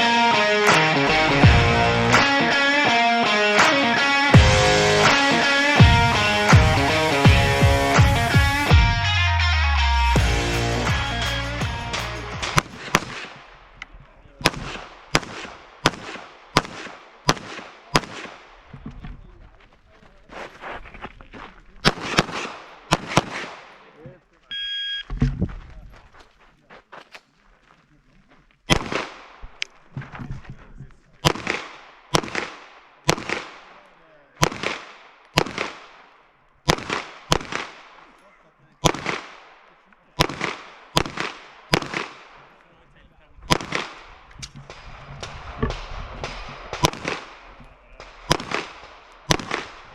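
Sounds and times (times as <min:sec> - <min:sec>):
rock music: 0:00.0 - 0:12.6
pistol gunshots with echo: 0:12.4 - 0:13.8, 0:14.4 - 0:18.7, 0:21.8 - 0:23.8, 0:28.7 - 0:29.6, 0:31.2 - 0:38.2, 0:38.8 - 0:42.6, 0:43.4 - 0:49.9.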